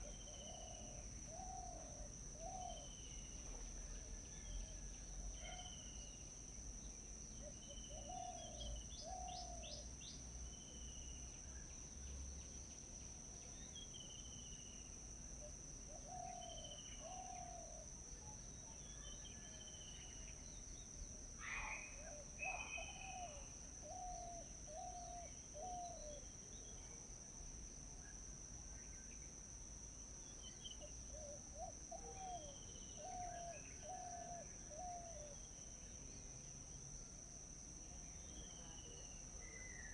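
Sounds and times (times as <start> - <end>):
insect drone: 0.0 - 39.9
bird low call: 21.4 - 26.2.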